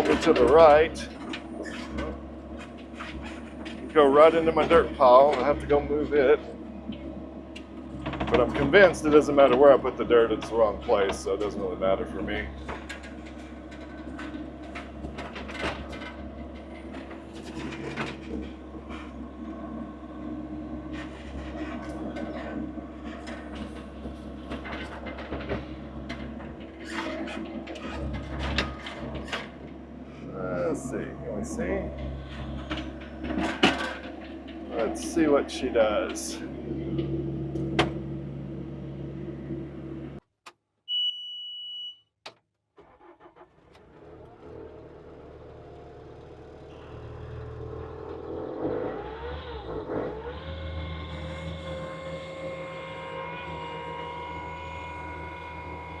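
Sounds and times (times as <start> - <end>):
machine clanks and knocks: 0.0 - 11.6, 12.4 - 19.2, 21.0 - 29.8, 31.8 - 38.1
skid steer engine running: 0.0 - 40.2, 43.0 - 56.0.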